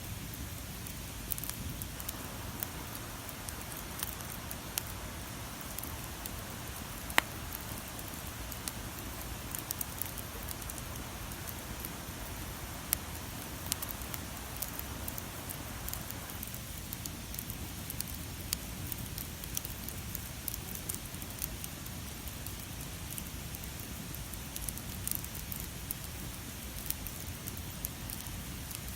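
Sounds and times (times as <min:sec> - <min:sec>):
campfire crackling: 0:00.0 - 0:28.9.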